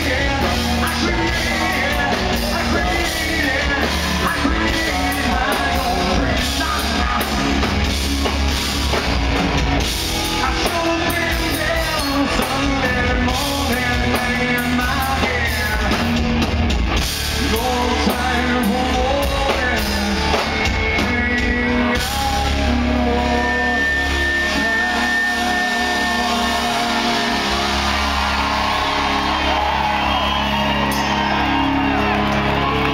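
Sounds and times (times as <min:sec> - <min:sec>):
man singing: 0:00.0 - 0:08.0, 0:10.2 - 0:16.6, 0:17.2 - 0:29.0
drums: 0:00.0 - 0:32.9
live rock band: 0:00.0 - 0:32.9.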